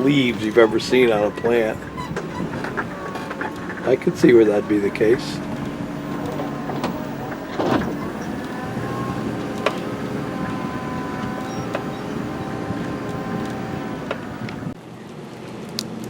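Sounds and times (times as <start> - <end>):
faint whine: 0.0 - 14.8
sharp clicks and rattles: 0.0 - 14.8
engine and road drone: 0.0 - 15.0.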